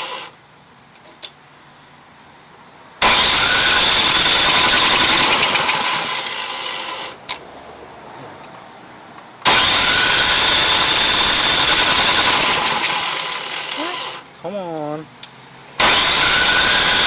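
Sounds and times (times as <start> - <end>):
engine electric starter cranking: 0.0 - 0.4, 3.0 - 7.4, 9.4 - 14.2, 15.8 - 17.0.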